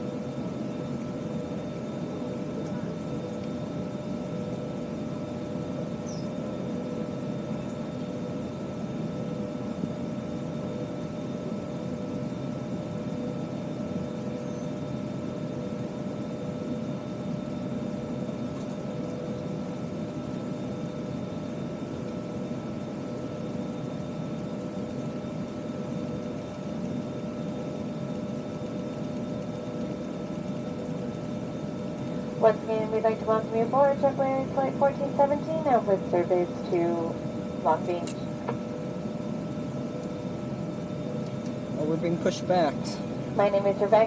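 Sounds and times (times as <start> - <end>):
steady whining tones: 19.6 - 44.0.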